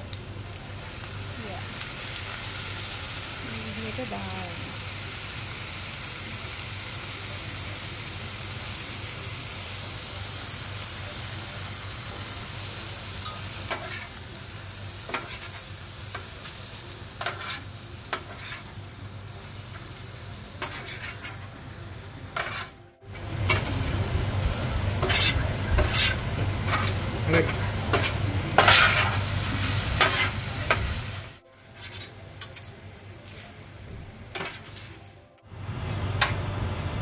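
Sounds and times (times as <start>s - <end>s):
chicken sizzling on griddle: 0.0s - 37.0s
metal spatulas scraping griddle: 13.2s - 14.2s, 15.1s - 16.2s, 17.2s - 18.8s, 20.6s - 21.5s, 22.3s - 22.8s, 23.4s - 23.8s, 25.0s - 30.9s, 31.6s - 33.4s, 34.3s - 35.0s.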